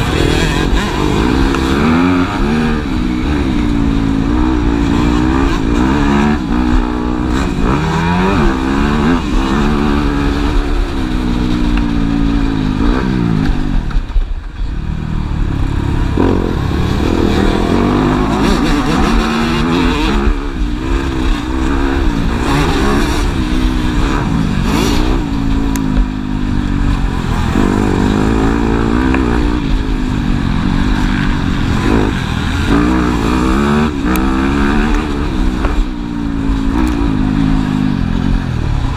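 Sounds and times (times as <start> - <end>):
motocross engines revving: 0.0 - 38.9.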